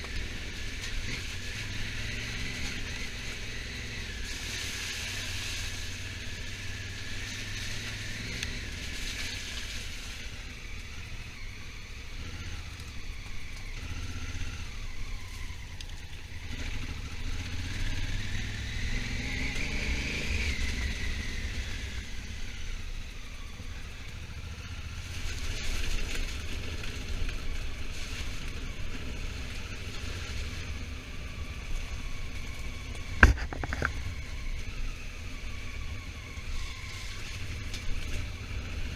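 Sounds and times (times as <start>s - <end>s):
motorcycle engine rumbling: 20.4s - 38.9s.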